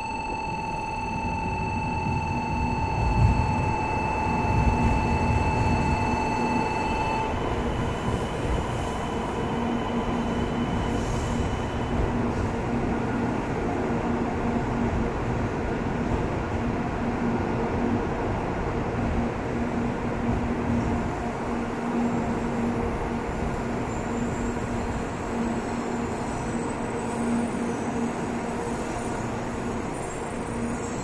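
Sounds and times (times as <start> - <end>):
high electronic tone: 0.0 - 7.3.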